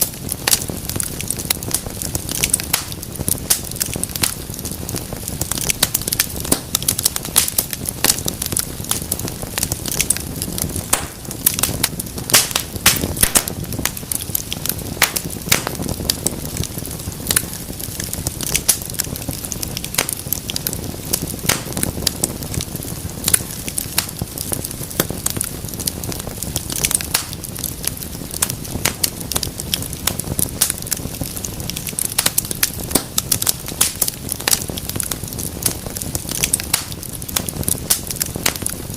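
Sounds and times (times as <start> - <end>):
low rumble of flame: 0.0 - 38.9
wood fire crackling and popping: 0.0 - 38.9.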